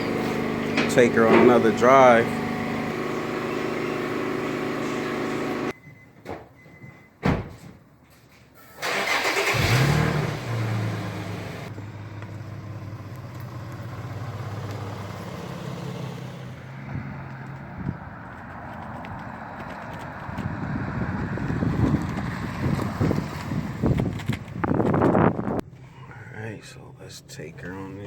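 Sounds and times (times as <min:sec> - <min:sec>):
steady running hum: 0:00.0 - 0:05.7
car engine cranking and idling: 0:00.0 - 0:05.8, 0:08.8 - 0:28.0.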